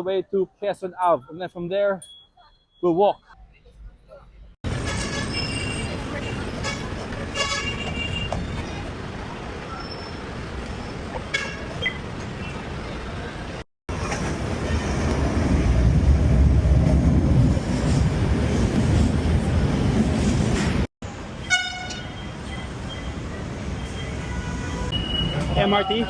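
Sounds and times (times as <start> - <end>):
street traffic: 0.0 - 26.0
light-rail train rumbling past: 13.9 - 21.4
vehicle horn toot: 21.4 - 22.2, 23.8 - 26.0.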